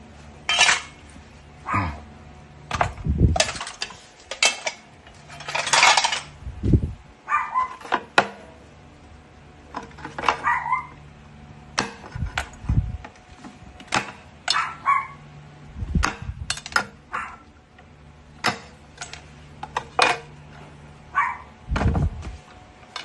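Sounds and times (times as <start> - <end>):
small hard objects clinking: 3.4 - 6.4.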